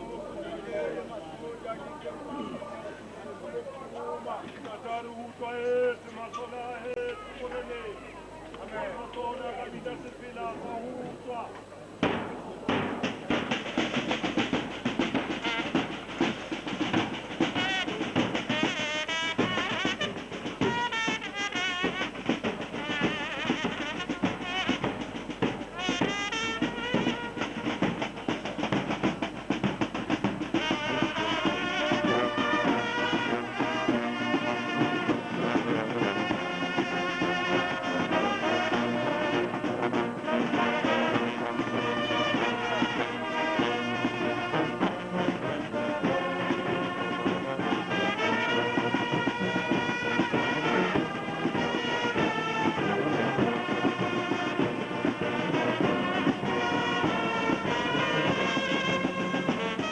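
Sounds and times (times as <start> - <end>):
brass band playing: 0.0 - 1.2, 12.0 - 59.9
fast dense drumming: 12.0 - 59.9.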